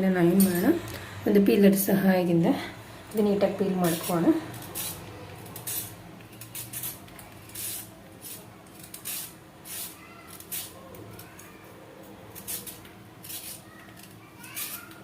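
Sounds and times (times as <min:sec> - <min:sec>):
peeler scraping a carrot: 0:03.8 - 0:11.5, 0:12.3 - 0:15.0.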